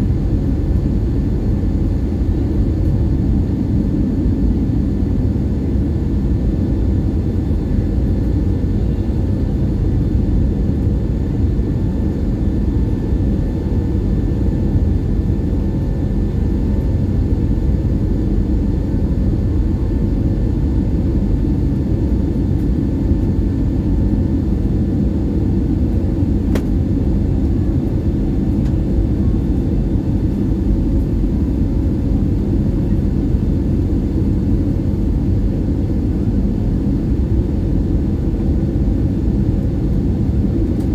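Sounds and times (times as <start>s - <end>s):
jet engine cabin rumble: 0.0s - 40.9s.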